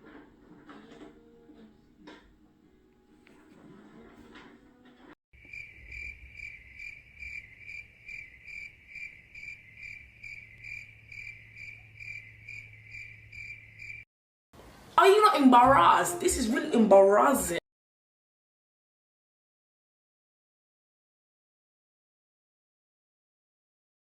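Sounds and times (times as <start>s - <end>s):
cricket chirping: 5.4s - 14.0s.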